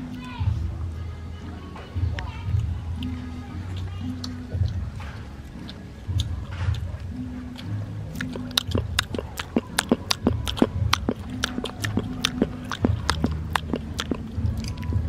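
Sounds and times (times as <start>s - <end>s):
low background music: 0.0s - 15.0s
children chewing: 1.4s - 15.0s
mouth clicks and lip smacks: 3.0s - 15.0s.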